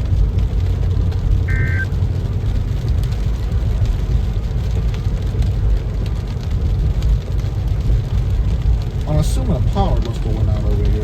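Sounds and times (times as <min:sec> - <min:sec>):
car cabin rumble: 0:00.0 - 0:07.4
rain pattering on car: 0:00.0 - 0:11.0.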